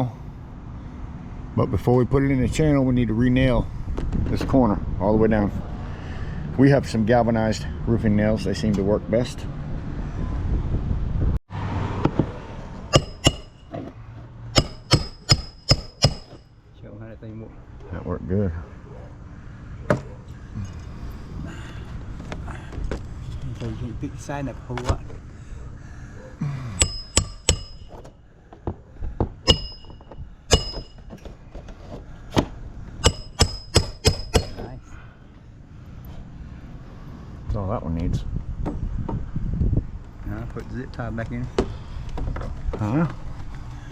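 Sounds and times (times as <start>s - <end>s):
steady background hum: 0.0s - 11.3s, 12.0s - 43.9s
hammer tapping nails: 12.9s - 13.6s, 14.6s - 16.4s, 26.8s - 28.1s, 29.5s - 31.2s, 33.0s - 34.6s.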